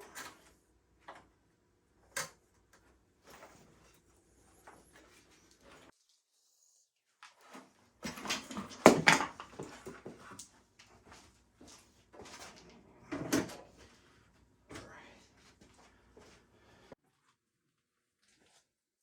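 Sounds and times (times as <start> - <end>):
tools and metal parts clattering: 8.0 - 10.5.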